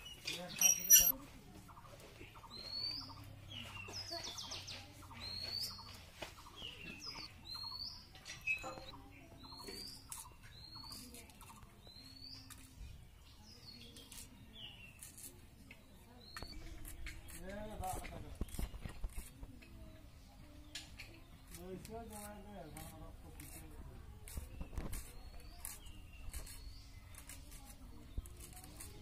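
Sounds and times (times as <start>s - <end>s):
small bird chirping: 0.0s - 29.0s
knife peeling onion skins: 9.6s - 12.8s, 13.7s - 20.0s, 20.9s - 29.0s.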